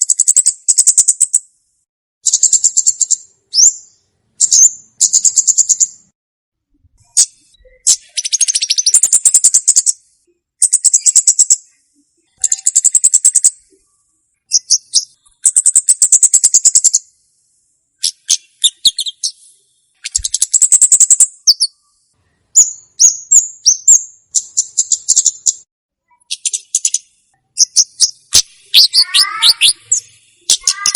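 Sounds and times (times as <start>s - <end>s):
bird chirps: 0.0s - 1.5s, 2.2s - 6.1s, 7.0s - 30.9s
rapid buzzy bird trills: 27.6s - 30.9s.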